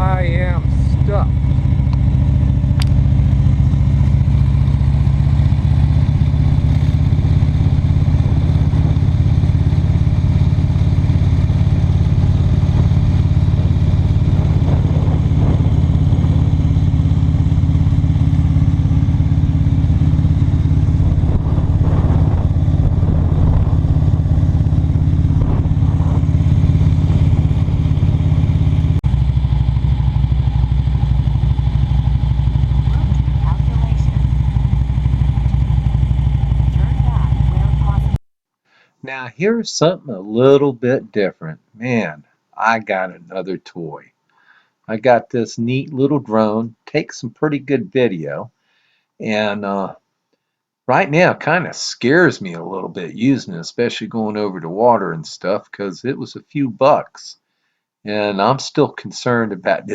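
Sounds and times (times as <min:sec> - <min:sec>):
motorcycle engine droning: 0:00.0 - 0:38.2.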